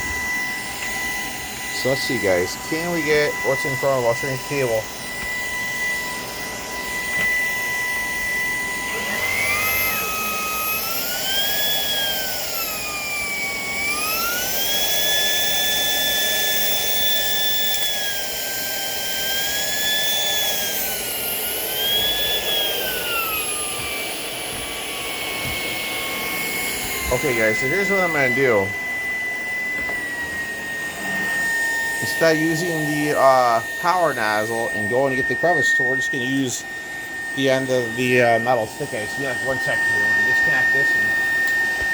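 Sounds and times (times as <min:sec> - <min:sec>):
cordless vacuum motor whine: 0:00.0 - 0:41.9.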